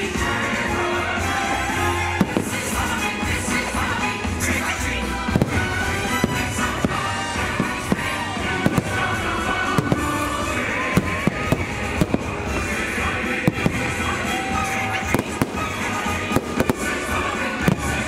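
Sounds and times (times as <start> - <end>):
loud show music: 0.0 - 18.0
fireworks banging: 0.1 - 18.0.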